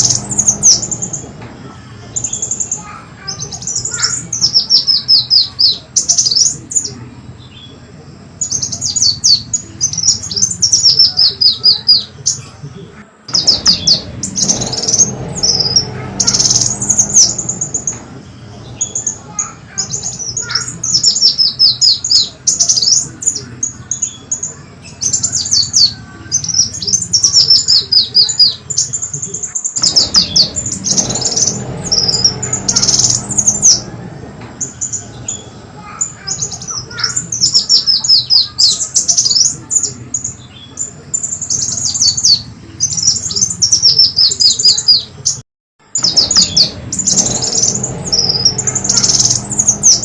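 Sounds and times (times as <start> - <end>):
sunbird calling: 0.0 - 50.0.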